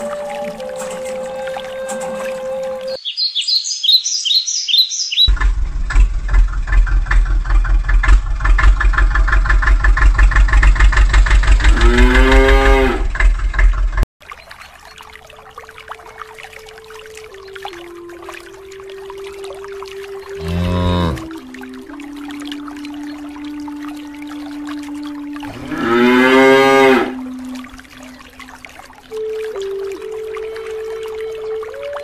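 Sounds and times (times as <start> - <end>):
birds chirping: 0.0 - 5.3
tractor engine chugging: 5.3 - 11.8
cow mooing: 11.6 - 13.1, 20.4 - 21.4, 25.4 - 27.2.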